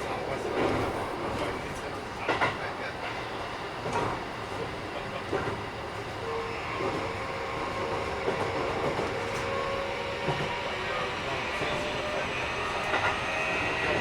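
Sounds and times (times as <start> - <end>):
electric train rumbling: 0.0 - 14.0
wheels clacking over rail joint: 0.5 - 3.2
traction motors whining: 5.0 - 14.0.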